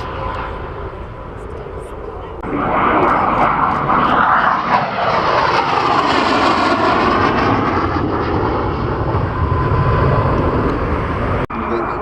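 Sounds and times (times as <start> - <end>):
jet aircraft flying past: 0.0 - 12.0.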